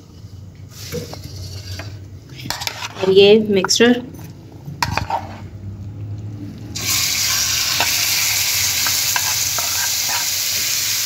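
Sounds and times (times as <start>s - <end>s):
spoon scraping dish: 0.9s - 5.5s, 8.8s - 10.5s
chicken sizzling in hot oil: 6.8s - 11.0s.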